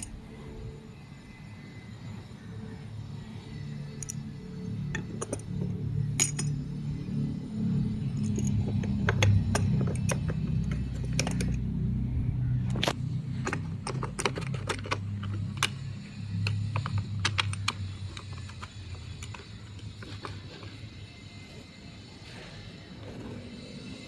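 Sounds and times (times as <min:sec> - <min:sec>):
low hum: 0:00.0 - 0:24.0
plastic parts clicking and tapping: 0:04.9 - 0:06.6, 0:08.1 - 0:11.7, 0:12.6 - 0:20.8.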